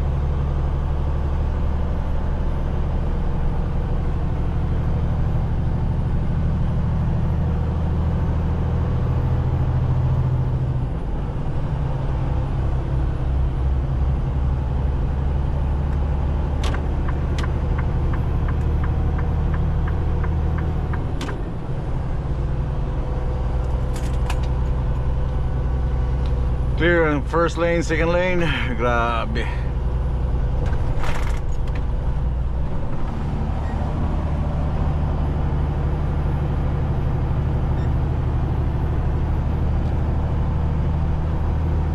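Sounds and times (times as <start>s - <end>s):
diesel truck engine droning: 0.0s - 41.9s.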